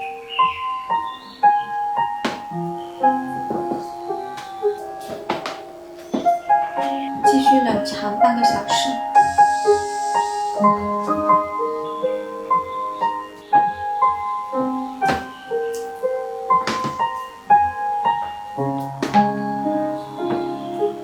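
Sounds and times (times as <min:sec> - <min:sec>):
slow piano music: 0:00.0 - 0:21.0
short knocks: 0:02.2 - 0:09.5, 0:15.0 - 0:15.9, 0:16.6 - 0:17.2, 0:18.7 - 0:20.7.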